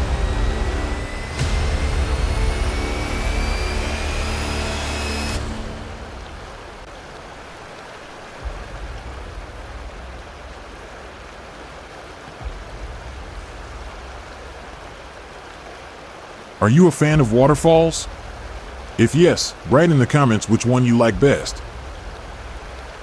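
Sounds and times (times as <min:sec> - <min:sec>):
low rumble: 0:00.0 - 0:07.4
waterfall rushing: 0:00.0 - 0:23.0.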